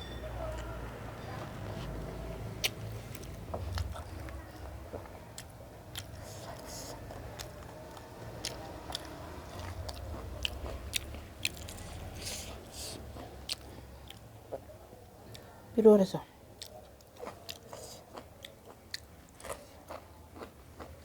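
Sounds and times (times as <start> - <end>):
low steady hum: 0.0 - 16.4
person chewing food: 1.3 - 14.7, 16.6 - 21.0.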